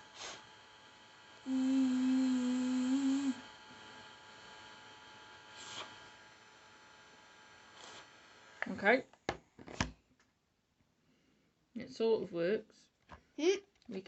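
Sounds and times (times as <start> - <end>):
faint background hum: 0.0 - 14.0
person humming: 1.4 - 3.5.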